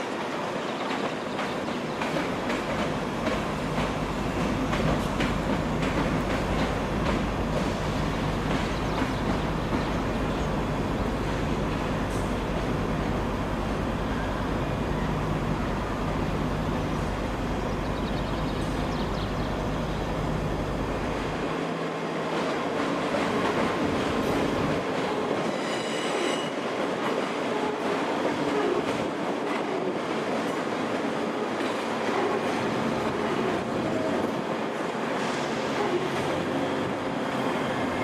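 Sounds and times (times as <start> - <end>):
electric train arriving: 0.0 - 38.0
departing train rumble: 0.6 - 38.0
high-pitched train squeal: 25.2 - 26.7.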